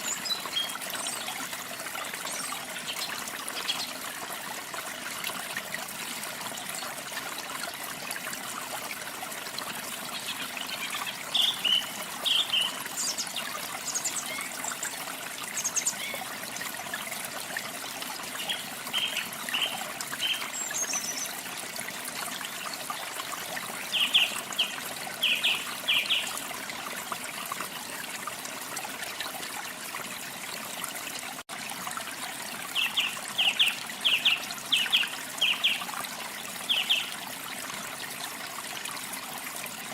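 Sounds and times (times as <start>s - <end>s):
small birds chirping: 23.8s - 26.4s.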